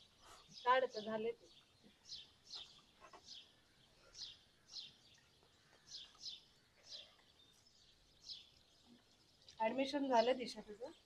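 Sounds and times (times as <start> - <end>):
faint background hiss: 0.0 - 11.0
small bird chirping: 0.0 - 11.0.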